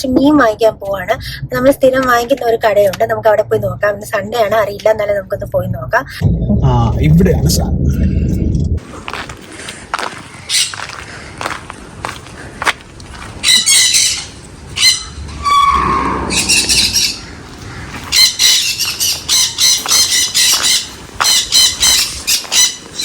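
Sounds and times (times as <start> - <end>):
parrots squawking: 13.4 - 23.0.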